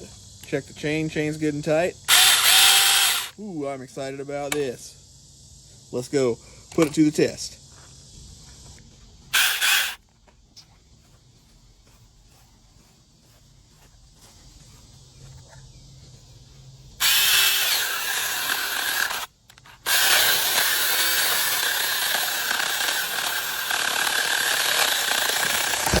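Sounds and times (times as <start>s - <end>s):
electric chainsaw running: 2.1s - 3.3s, 9.3s - 10.0s, 17.0s - 26.0s.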